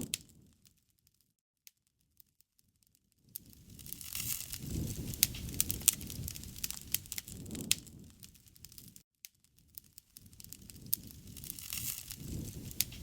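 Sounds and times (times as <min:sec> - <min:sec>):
wood fire crackling and popping: 0:00.0 - 0:00.8, 0:03.2 - 0:13.0
low rush of flames: 0:03.4 - 0:09.0, 0:09.6 - 0:13.0.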